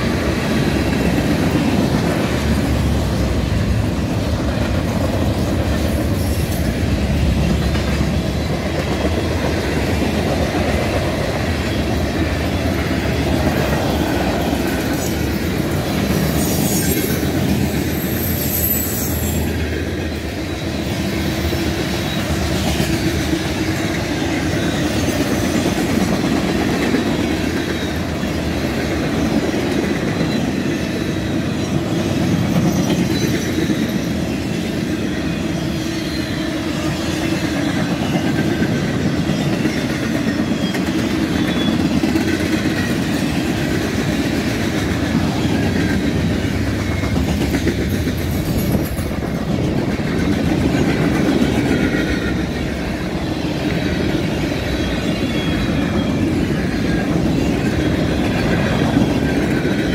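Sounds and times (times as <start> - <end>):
train wheels clattering on rails: 0.0 - 59.9.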